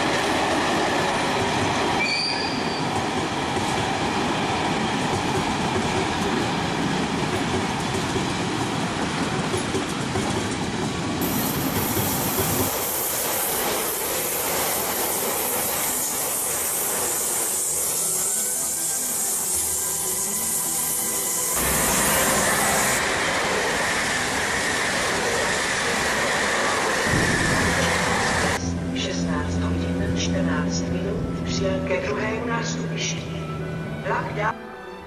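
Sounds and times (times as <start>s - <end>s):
train rumbling past: 0.0s - 35.0s
hiss of wheels on rail: 11.2s - 28.6s.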